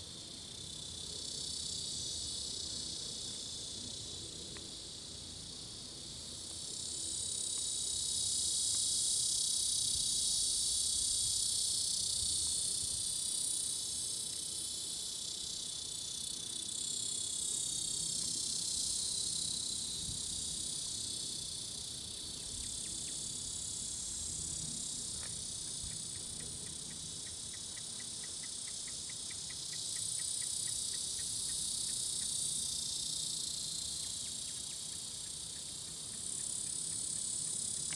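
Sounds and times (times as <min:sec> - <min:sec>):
cicadas shrilling: 0:14.5 - 0:37.9.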